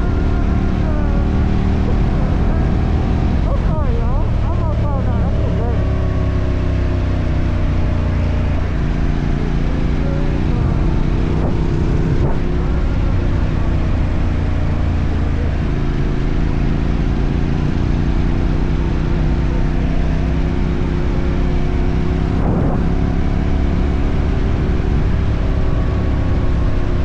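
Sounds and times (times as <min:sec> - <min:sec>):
motorcycle engine running: 0:00.0 - 0:27.0
rushing wind noise: 0:07.2 - 0:14.4, 0:20.9 - 0:27.0.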